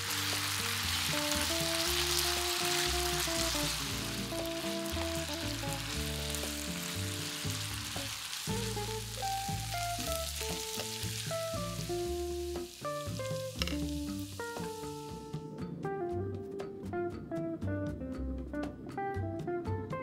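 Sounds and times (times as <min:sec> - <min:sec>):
potatoes sizzling in oil: 0:00.0 - 0:15.4
soft background music: 0:00.0 - 0:20.0.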